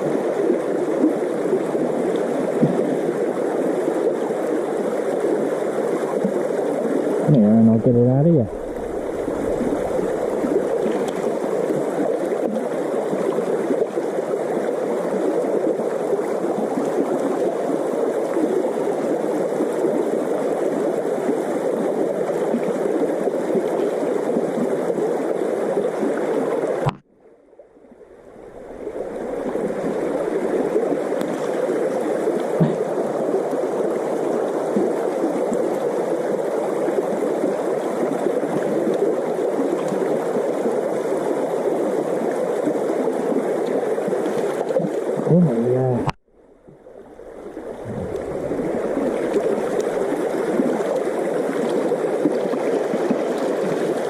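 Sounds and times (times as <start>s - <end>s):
river water flowing over stones: 0.0s - 54.0s.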